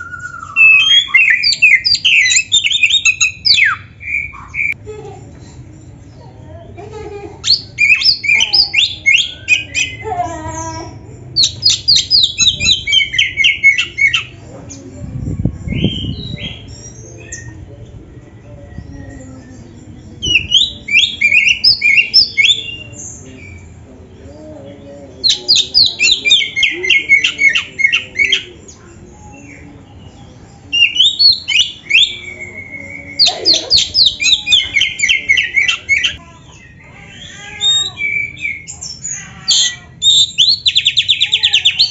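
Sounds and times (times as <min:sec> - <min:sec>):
songbird singing whistled phrases: 0:00.0 - 0:04.8, 0:07.5 - 0:10.0, 0:11.4 - 0:14.3, 0:15.6 - 0:17.6, 0:20.2 - 0:23.7, 0:25.2 - 0:28.7, 0:29.3 - 0:41.9.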